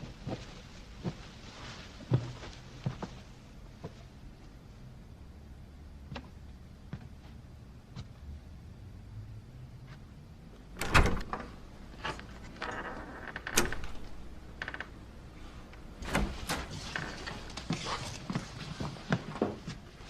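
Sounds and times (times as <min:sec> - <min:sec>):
door rattling: 0:10.8 - 0:15.1.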